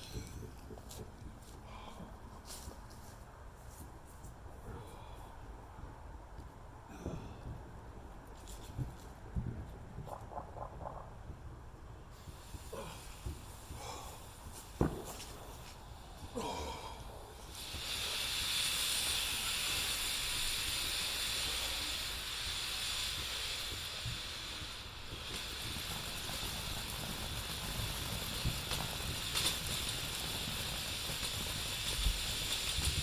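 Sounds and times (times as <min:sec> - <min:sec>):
firework hissing: 0:00.0 - 0:03.8, 0:08.4 - 0:33.0
sharp firework pops: 0:12.1 - 0:16.4, 0:17.4 - 0:33.0.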